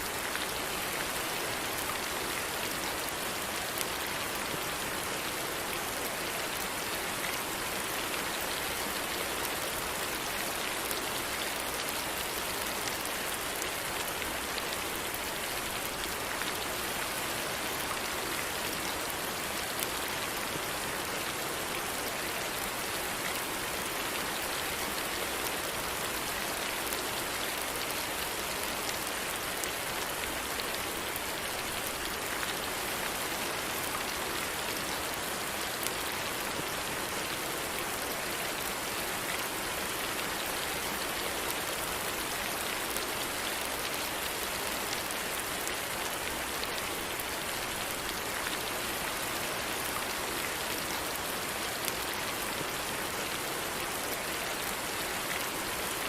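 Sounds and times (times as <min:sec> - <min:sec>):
rain hissing on a surface: 0:00.0 - 0:56.0.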